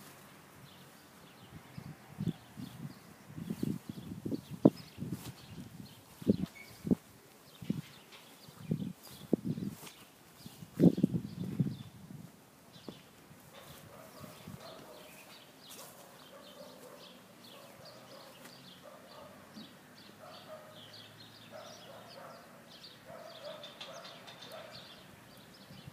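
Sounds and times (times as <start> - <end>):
lower bird calls: 0.7 - 12.0
faint high bird chirps: 6.2 - 7.0.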